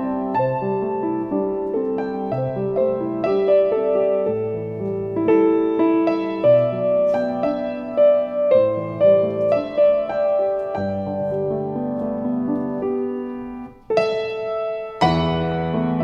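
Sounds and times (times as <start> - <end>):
solo piano melody: 0.0 - 16.0.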